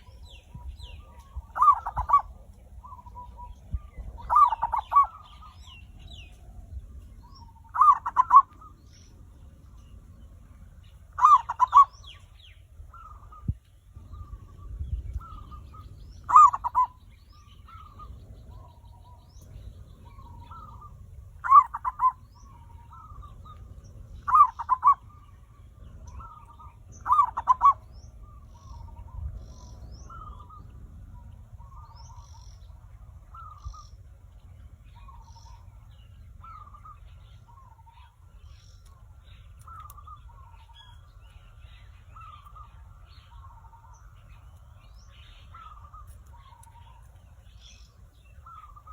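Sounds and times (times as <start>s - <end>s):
dove cooing: 0.0s - 8.9s, 11.0s - 12.3s, 12.9s - 33.9s, 36.4s - 41.0s.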